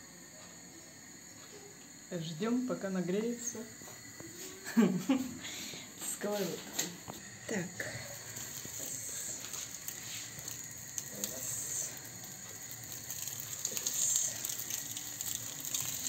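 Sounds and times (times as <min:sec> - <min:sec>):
cutlets sizzling in hot oil: 0:06.2 - 0:16.0.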